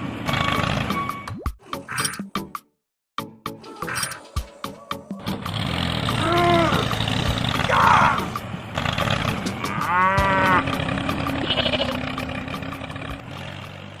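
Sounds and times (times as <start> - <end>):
moo-like animal call: 3.8 - 7.0, 9.4 - 13.2.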